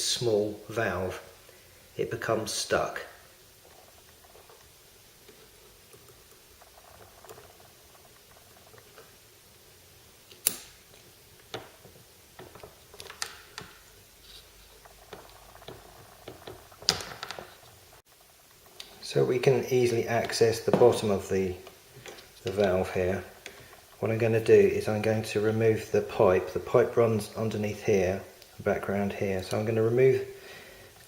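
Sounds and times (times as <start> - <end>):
hard plastic parts clicking and knocking: 15.0 - 17.6.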